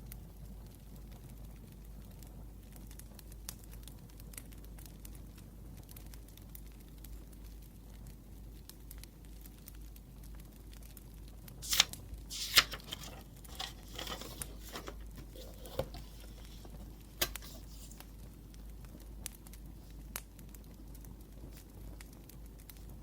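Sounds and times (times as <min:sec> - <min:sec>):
paper snapping: 0:11.6 - 0:18.0
paper crinkling and tearing: 0:11.6 - 0:18.1.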